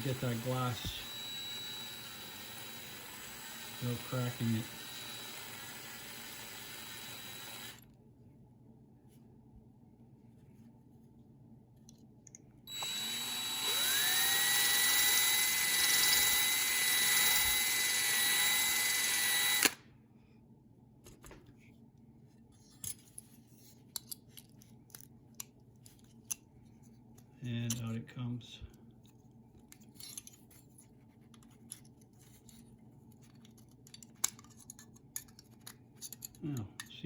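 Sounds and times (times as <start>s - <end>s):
power drill whining: 0.0s - 7.8s, 12.7s - 19.8s.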